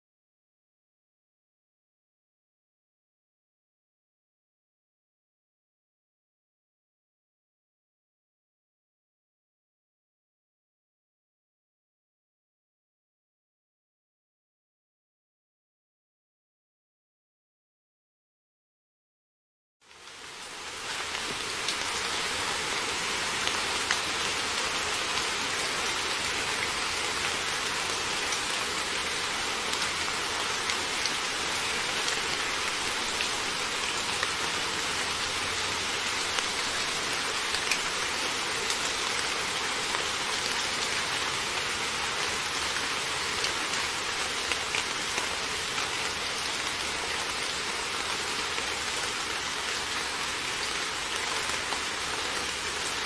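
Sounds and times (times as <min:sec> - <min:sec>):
heavy rain falling: 0:19.9 - 0:53.0
raindrops ticking on a surface: 0:19.9 - 0:53.0.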